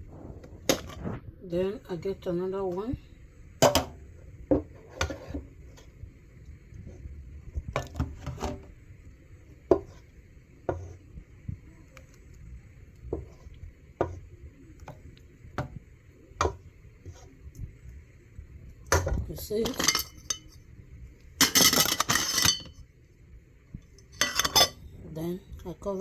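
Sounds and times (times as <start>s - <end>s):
utensils clinking on containers: 19.0s - 20.5s, 21.4s - 22.8s, 24.1s - 24.8s
utensil scraping: 21.4s - 22.7s.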